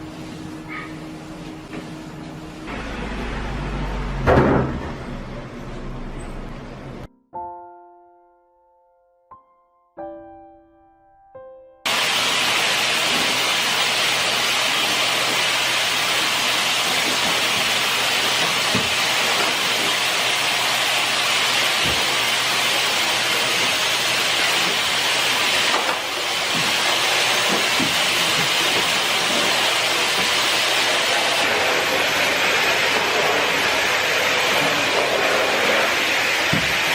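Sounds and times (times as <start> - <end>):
loud steady hiss: 11.9 - 36.9.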